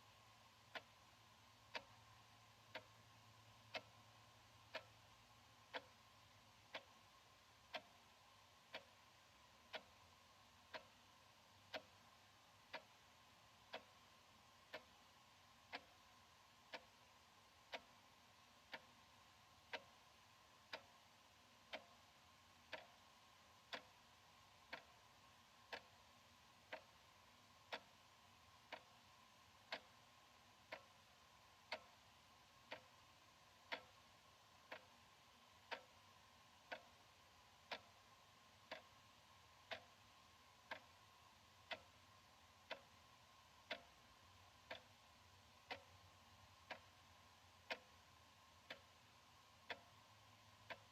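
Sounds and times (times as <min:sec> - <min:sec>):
faint steady hum: 0:00.0 - 0:50.9
wall clock ticking: 0:00.0 - 0:50.9.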